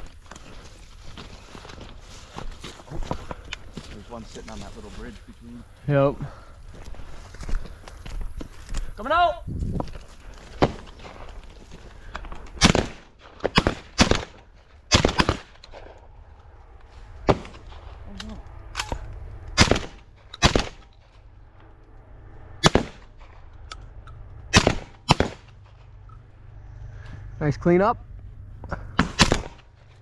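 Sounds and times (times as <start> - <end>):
shotguns firing: 12.6 - 15.9, 17.2 - 18.0, 18.7 - 21.1, 22.6 - 23.4, 24.5 - 26.0, 28.8 - 29.8.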